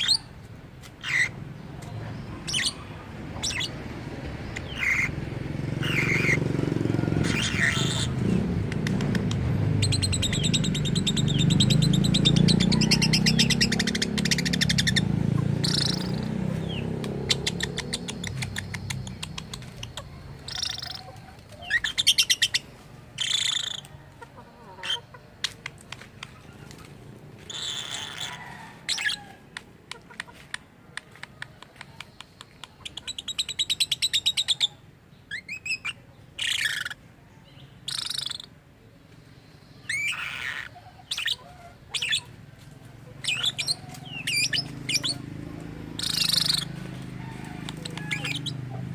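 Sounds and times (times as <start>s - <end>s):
bird chirps and squawks: 0.0s - 0.3s, 1.0s - 3.8s, 4.5s - 5.2s, 5.8s - 6.5s, 7.1s - 25.7s, 27.4s - 29.3s, 32.5s - 37.0s, 37.8s - 38.6s, 39.8s - 42.3s, 43.1s - 45.3s, 45.9s - 46.8s, 47.6s - 48.9s
lovebird chattering and trilling: 0.0s - 0.3s, 1.0s - 6.5s, 7.2s - 23.9s, 27.4s - 29.3s, 31.3s - 38.6s, 39.6s - 42.3s, 43.1s - 46.8s, 47.6s - 48.9s.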